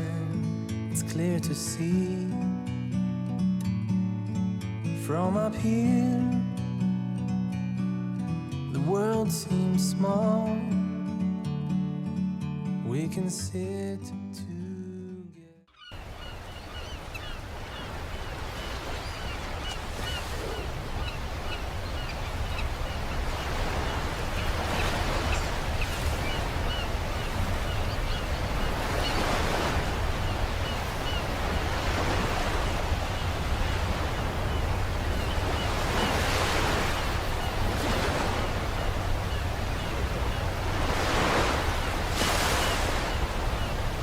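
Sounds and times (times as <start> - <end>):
sea waves breaking on shore: 15.9 - 44.0.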